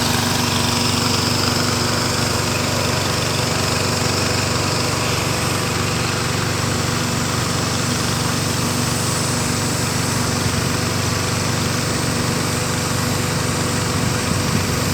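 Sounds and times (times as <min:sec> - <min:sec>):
boat engine running: 0:00.0 - 0:14.9.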